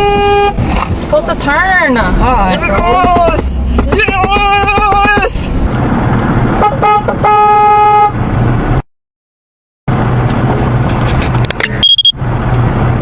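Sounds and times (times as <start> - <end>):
car horn honking: 0.0 - 0.7, 6.6 - 8.2
low engine hum: 0.0 - 8.8, 9.9 - 13.0
road noise: 0.0 - 8.9, 9.9 - 13.0.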